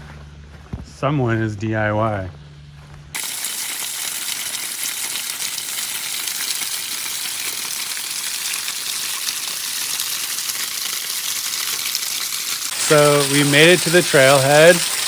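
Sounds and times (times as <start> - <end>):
waterfall rushing onto rocks: 3.2 - 15.0.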